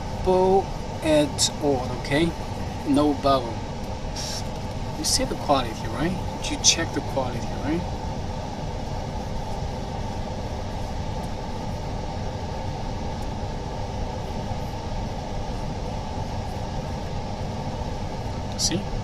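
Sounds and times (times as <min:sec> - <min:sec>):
workshop machinery running: 0:00.0 - 0:19.0.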